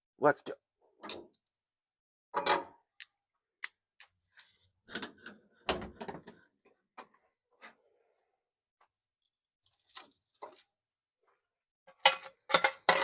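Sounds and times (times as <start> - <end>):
clicks and clatter of handling: 11.9 - 13.0.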